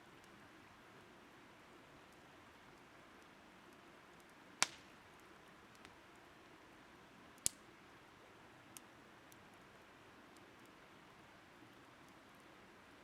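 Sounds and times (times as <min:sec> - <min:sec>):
steady low hiss: 0:00.0 - 0:13.0
firewood cracking and popping: 0:04.2 - 0:06.0, 0:07.4 - 0:07.6.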